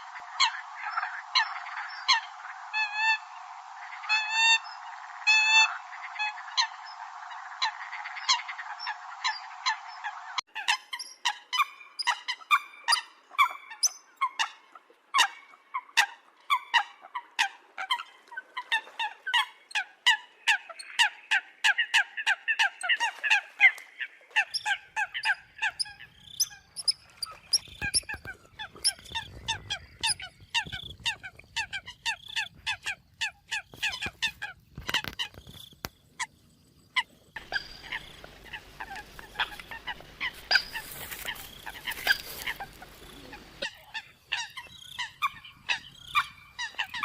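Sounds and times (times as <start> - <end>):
coots honking calls: 37.0 - 47.0.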